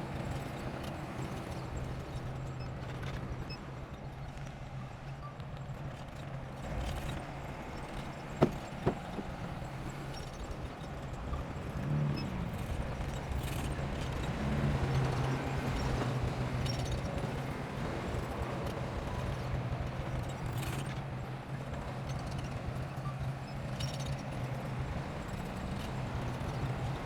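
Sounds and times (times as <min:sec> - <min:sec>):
sharp knocks: 0:08.4 - 0:09.3.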